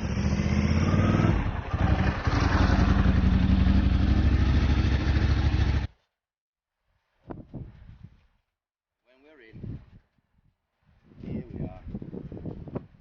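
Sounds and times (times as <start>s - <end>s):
motorcycle engine at low revs: 0.0s - 6.0s.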